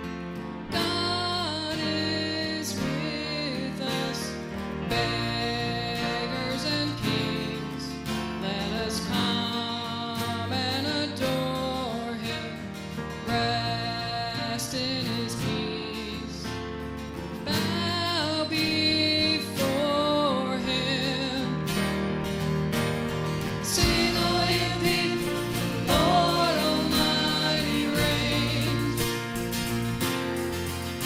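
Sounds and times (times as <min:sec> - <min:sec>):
strummed acoustic guitar: 0:00.0 - 0:31.0
worship song music: 0:00.4 - 0:31.0.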